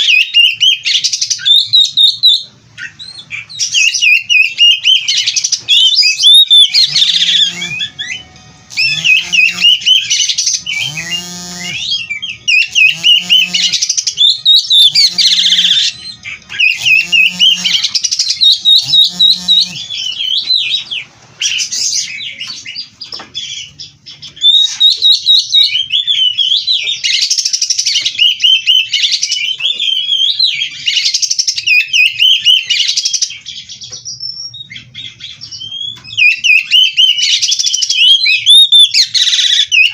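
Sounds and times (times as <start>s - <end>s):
short low pitched bird calls: 0.0s - 27.3s
bird singing warbles and trills: 0.0s - 39.9s.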